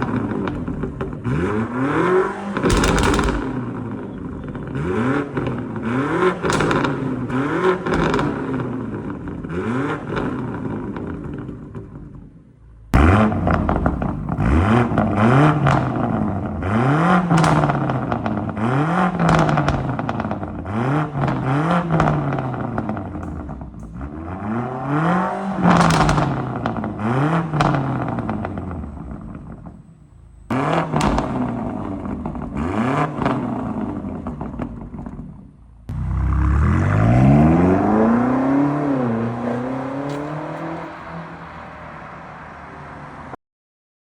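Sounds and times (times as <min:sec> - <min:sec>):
car engine idling: 0:00.0 - 0:09.5, 0:33.6 - 0:38.2
car engine revving: 0:00.0 - 0:12.1, 0:13.0 - 0:29.8, 0:30.5 - 0:42.9.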